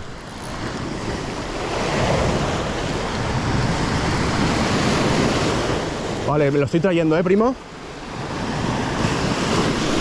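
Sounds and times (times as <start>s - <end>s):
wind buffeting microphone: 0.0s - 6.3s
sea surf washing ashore: 0.0s - 10.0s.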